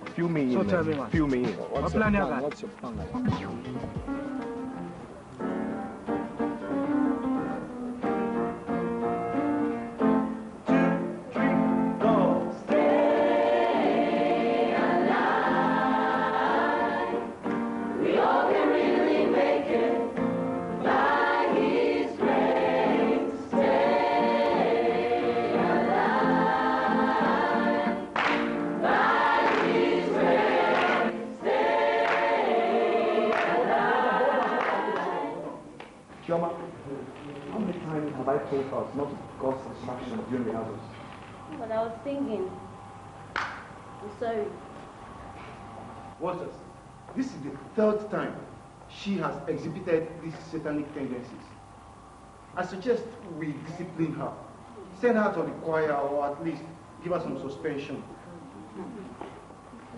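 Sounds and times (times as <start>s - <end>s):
choir singing gospel song: 11.6s - 35.8s.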